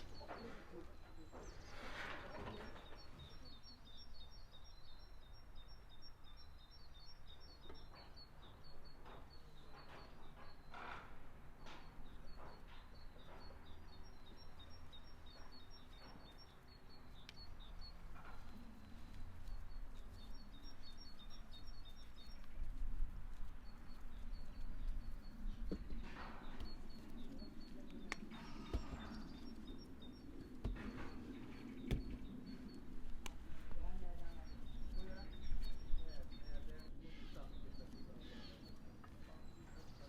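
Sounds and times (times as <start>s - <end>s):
small birds chirping: 0.0s - 40.0s
scattered knocks: 30.6s - 32.3s.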